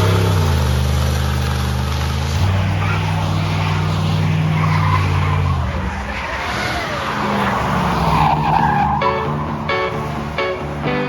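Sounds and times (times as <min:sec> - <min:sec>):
car engine running: 0:00.0 - 0:07.8
tyres skidding and squealing: 0:00.0 - 0:11.0
music: 0:09.0 - 0:11.0.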